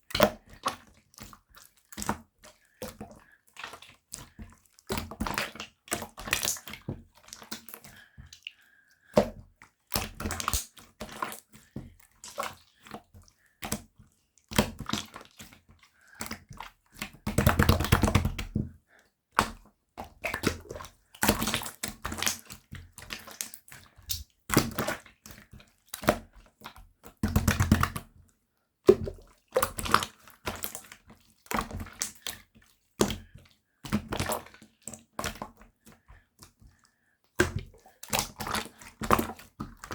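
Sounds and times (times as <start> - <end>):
slime squelching by hand: 10.0 - 13.0.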